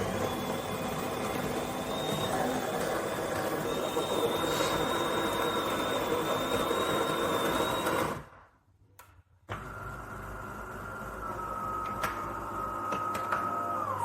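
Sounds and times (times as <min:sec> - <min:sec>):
coffee grinder whirring: 0:00.0 - 0:08.3.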